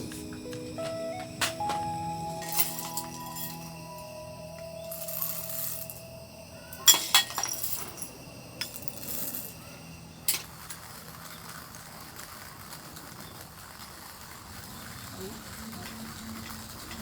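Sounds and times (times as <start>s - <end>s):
hard objects clinking: 2.4s - 3.8s, 6.7s - 11.6s.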